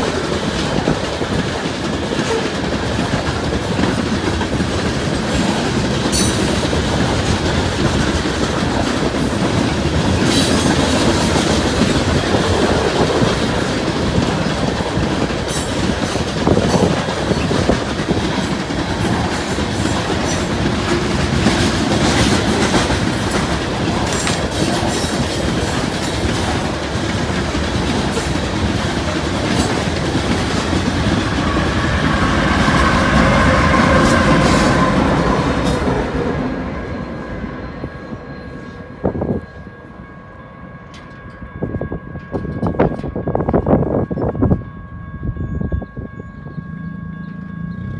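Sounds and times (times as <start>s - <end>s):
clickety-clack of wheels on rail joints: 0.0s - 47.9s
train cars rolling past: 0.0s - 47.9s.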